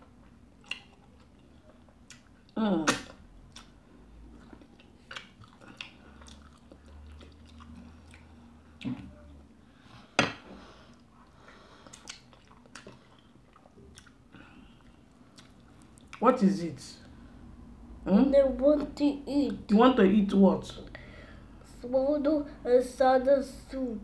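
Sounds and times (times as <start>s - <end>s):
person chewing wetly: 0.0s - 2.6s, 3.4s - 9.1s, 11.8s - 16.2s.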